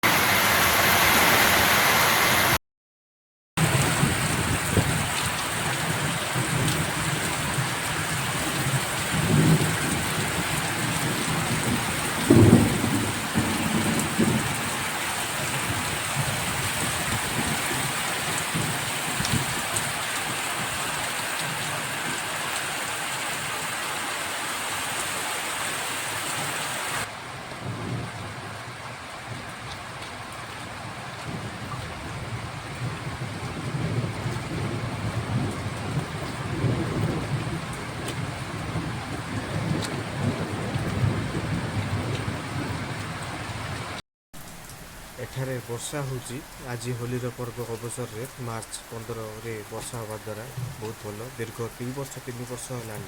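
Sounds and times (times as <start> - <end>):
heavy rain pouring: 0.0 - 2.6, 3.6 - 53.0
low thunder rumbles: 3.6 - 20.9, 27.2 - 29.7, 30.6 - 43.9.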